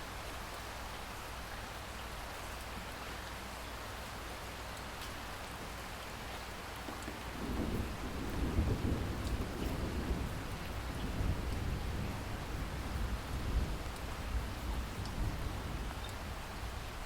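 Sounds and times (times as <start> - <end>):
rain hiss: 0.0 - 17.0
low thunder rumble: 7.3 - 17.0.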